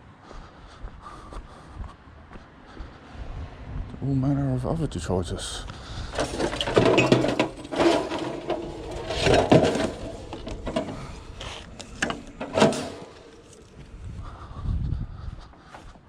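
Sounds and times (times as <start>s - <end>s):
scrap metal clanking and scraping: 6.1s - 13.9s.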